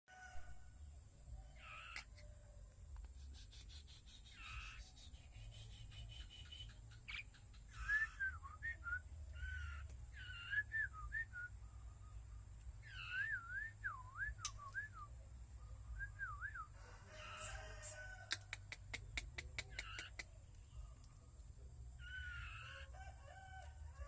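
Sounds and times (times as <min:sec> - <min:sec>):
songbird whistling: 0:03.6 - 0:11.6, 0:12.8 - 0:15.2, 0:15.9 - 0:16.8.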